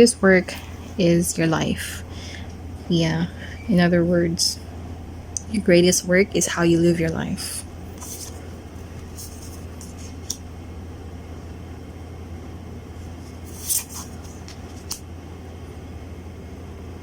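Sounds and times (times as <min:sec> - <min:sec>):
cards being handled: 0:07.9 - 0:10.4, 0:13.2 - 0:15.0.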